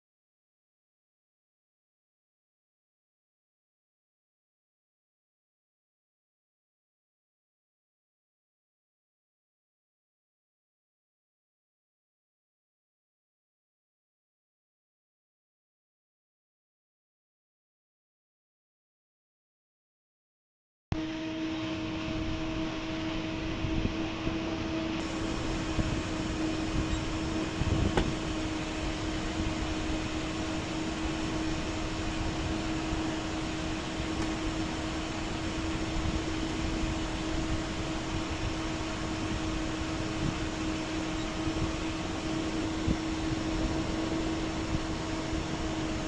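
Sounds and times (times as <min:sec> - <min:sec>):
fan airflow noise: 0:21.0 - 0:46.0
steady hum: 0:21.0 - 0:46.0.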